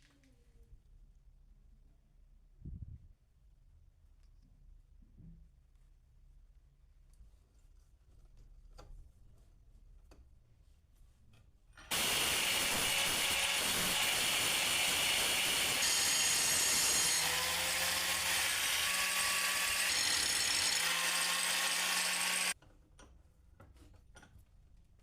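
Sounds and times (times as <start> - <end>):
power tool on metal: 11.9 - 22.6.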